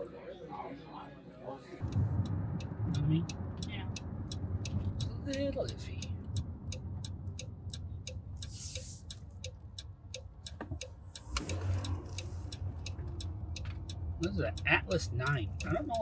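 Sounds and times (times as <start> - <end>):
low car cabin hum: 1.8 - 16.0
turn signal ticking: 1.8 - 16.0.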